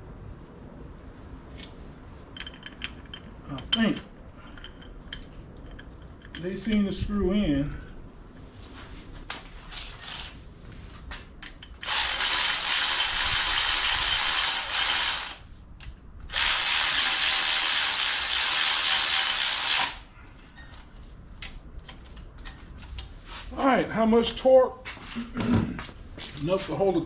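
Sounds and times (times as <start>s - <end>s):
power tool driving bolts: 9.7s - 10.4s, 11.8s - 15.4s, 16.3s - 20.0s.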